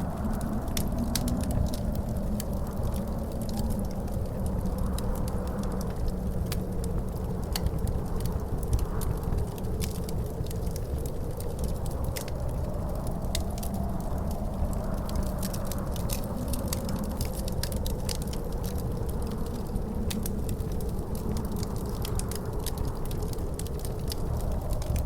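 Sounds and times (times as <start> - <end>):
faint wavering howl: 0.0 - 25.0
wind rumble: 0.0 - 25.0
wood fire crackling and popping: 0.0 - 25.0.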